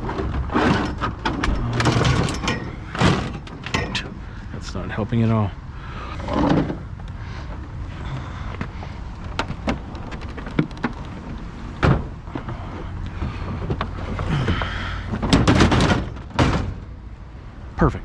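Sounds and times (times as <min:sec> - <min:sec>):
scrap metal clanking: 0:00.0 - 0:04.5.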